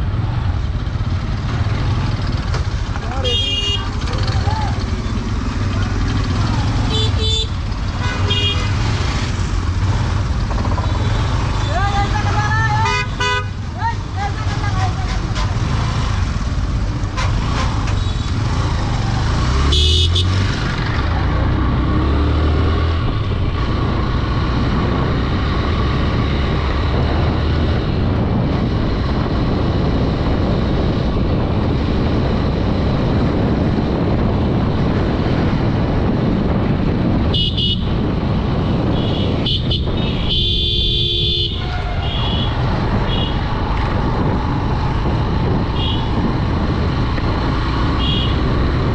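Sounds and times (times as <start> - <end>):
motorcycle engine running: 0.0 - 12.8
road noise: 0.0 - 48.9
vehicle horns honking: 3.2 - 4.3, 6.8 - 9.1, 12.8 - 13.6, 19.6 - 20.5, 37.2 - 38.0, 38.9 - 43.5, 45.7 - 46.2, 48.0 - 48.4.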